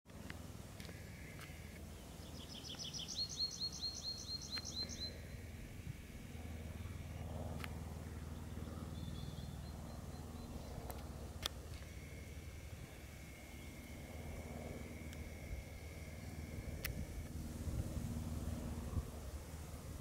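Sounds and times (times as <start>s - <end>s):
steady low rumble: 0.1s - 20.0s
songbird singing high notes: 2.2s - 5.2s.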